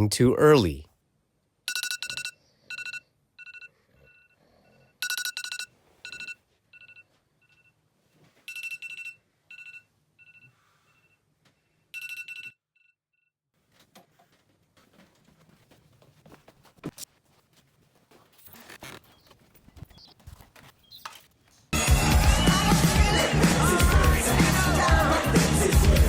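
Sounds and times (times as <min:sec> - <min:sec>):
electronic alarm beeping: 0:01.7 - 0:04.3, 0:05.0 - 0:07.0.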